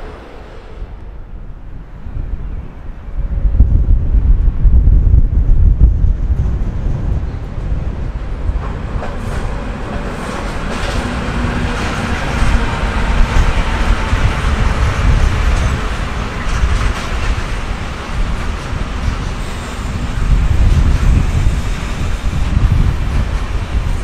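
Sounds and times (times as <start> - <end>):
train rumble with wheel hiss: 0.0 - 24.0.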